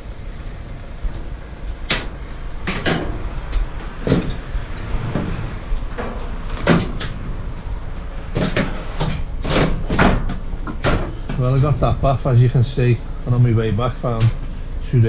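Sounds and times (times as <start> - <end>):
steady low rumble: 0.0 - 15.0
sharp knocks and clunks: 1.9 - 7.3, 8.3 - 11.7.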